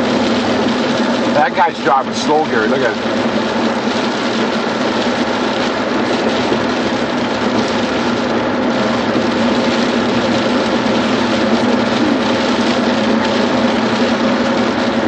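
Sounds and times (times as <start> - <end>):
car interior driving noise: 0.0 - 15.0
low hum: 6.6 - 15.0.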